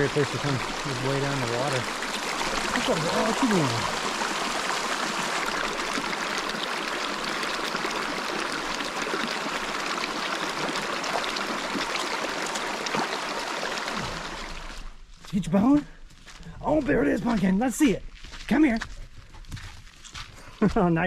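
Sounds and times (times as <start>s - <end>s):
river water rushing: 0.0s - 14.9s.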